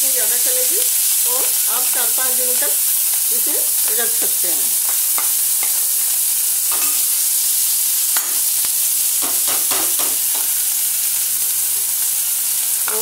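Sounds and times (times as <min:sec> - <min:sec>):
food sizzling in hot oil: 0:00.0 - 0:13.0
spoon scraping and clinking bowl: 0:06.7 - 0:07.1.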